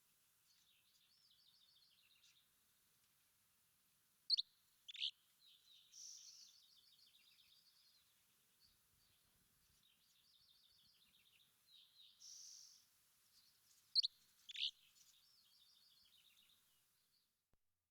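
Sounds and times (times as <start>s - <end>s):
songbird twittering: 4.3s - 8.0s, 13.9s - 16.6s.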